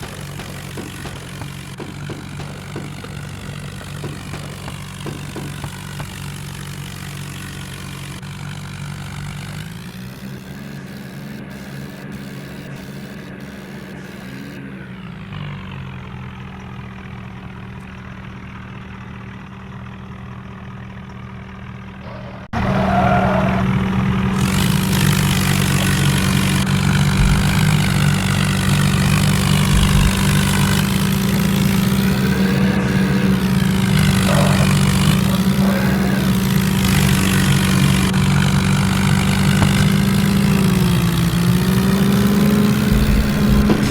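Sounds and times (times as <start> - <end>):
tractor engine running: 0.0 - 43.9.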